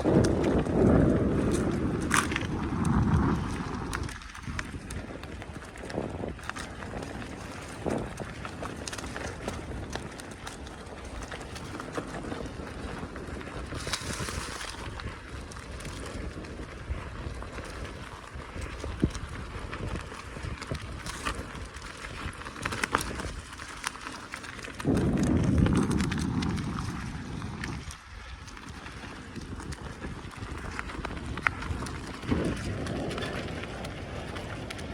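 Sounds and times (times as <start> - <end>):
bicycle tyres rolling on track: 0.0 - 34.9
bike rattles and clicks: 0.0 - 34.9
low rumble: 24.8 - 28.4.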